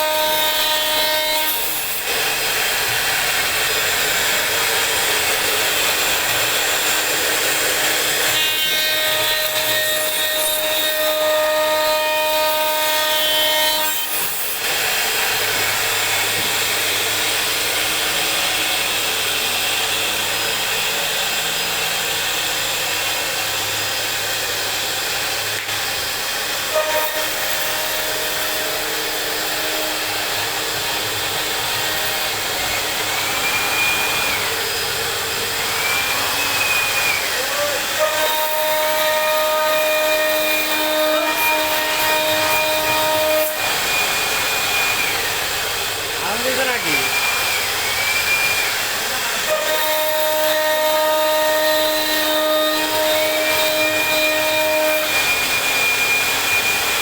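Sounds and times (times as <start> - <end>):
router spindle cutting wood: 0.0 - 57.0
pitched whine: 15.2 - 40.9.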